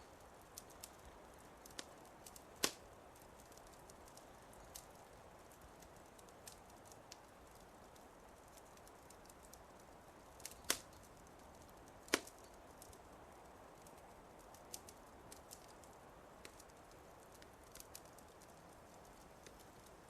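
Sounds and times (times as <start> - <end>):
faint hiss: 0.0 - 20.0
wood fire crackling: 0.0 - 20.0.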